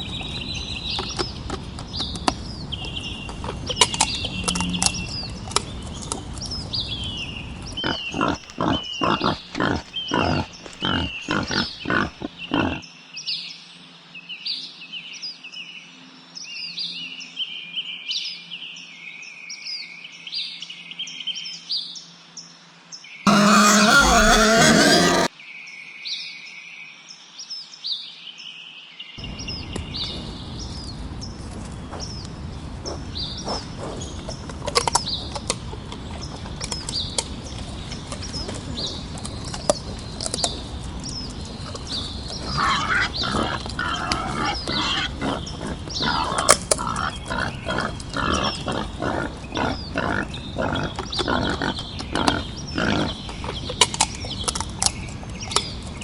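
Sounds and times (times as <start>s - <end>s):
small birds chirping: 7.8s - 12.8s, 23.3s - 25.3s, 41.8s - 54.6s
wild boar grunting: 7.8s - 12.8s, 23.3s - 25.3s, 42.3s - 53.4s.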